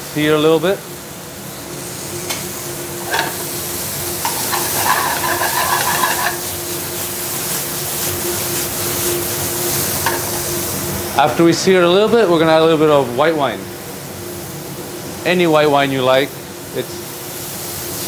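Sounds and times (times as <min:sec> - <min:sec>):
food sizzling in a pan: 0:01.5 - 0:11.2
pan scraping: 0:03.0 - 0:03.6, 0:04.2 - 0:06.7.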